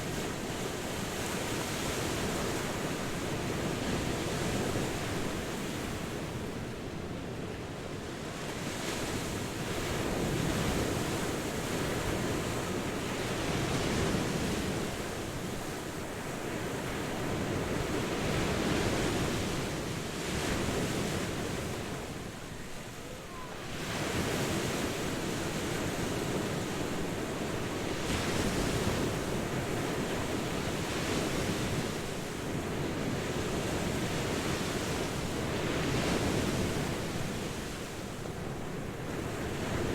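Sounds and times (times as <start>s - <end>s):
ocean waves washing ashore: 0.0s - 39.9s.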